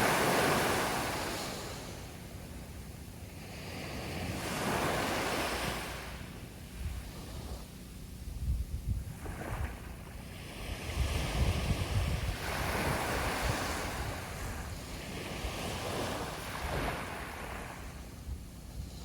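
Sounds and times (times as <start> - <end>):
sea waves breaking on shore: 0.0 - 7.9, 9.1 - 19.0
wind rumbling on microphone: 6.6 - 19.0.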